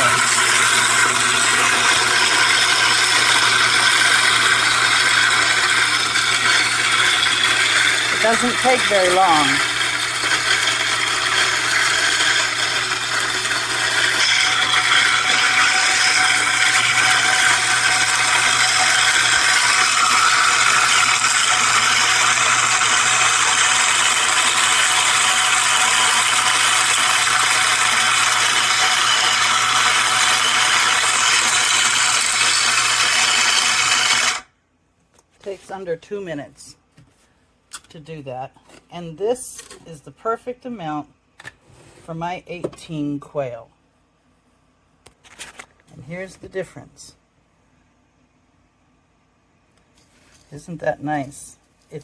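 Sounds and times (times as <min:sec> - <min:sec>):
coffee grinder grinding grain: 0:00.0 - 0:34.5.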